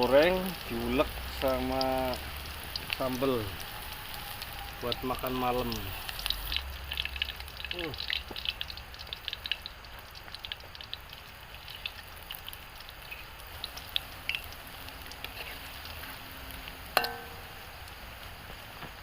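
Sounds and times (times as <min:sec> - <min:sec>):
food frying in hot oil: 0:00.0 - 0:19.0
utensil clinking on pan: 0:17.0 - 0:17.7.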